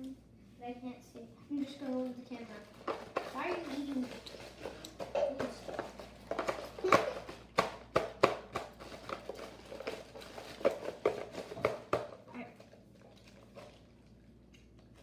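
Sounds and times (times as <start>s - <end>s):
plastic bags crinkling: 1.8s - 7.6s, 8.6s - 11.9s.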